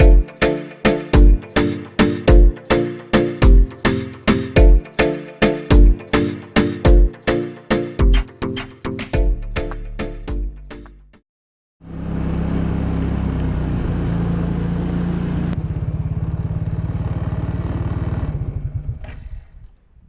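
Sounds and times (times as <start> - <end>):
engine humming: 11.8 - 19.3.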